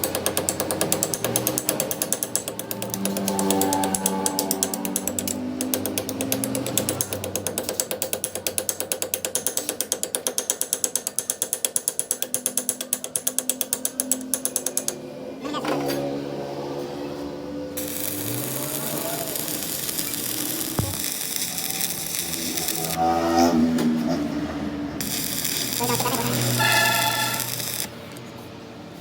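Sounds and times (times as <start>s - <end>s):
machine clicking rapidly: 0.0s - 15.0s, 17.8s - 23.0s, 25.0s - 28.0s.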